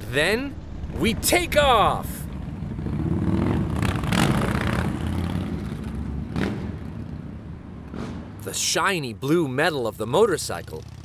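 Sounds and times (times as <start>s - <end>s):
motorcycle accelerating away: 2.4s - 7.2s.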